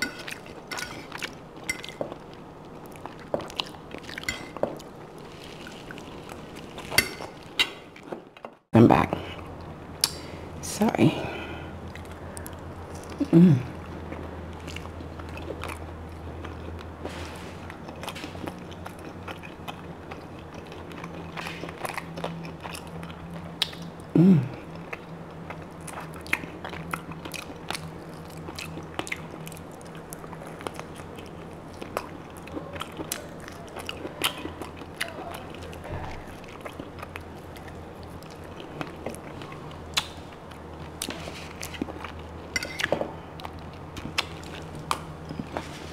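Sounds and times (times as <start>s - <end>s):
chewing and biting meat: 17.6s - 23.9s, 24.8s - 45.9s.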